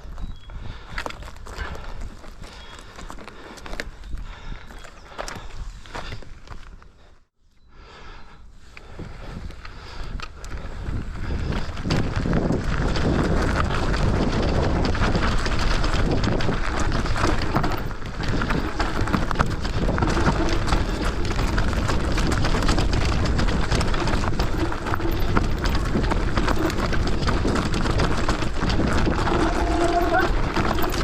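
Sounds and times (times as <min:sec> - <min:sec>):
bike clattering and rattling: 0:00.0 - 0:06.8, 0:09.0 - 0:31.0
tyres crunching over stones: 0:00.0 - 0:07.1, 0:10.3 - 0:31.0
wind on microphone: 0:08.8 - 0:31.0.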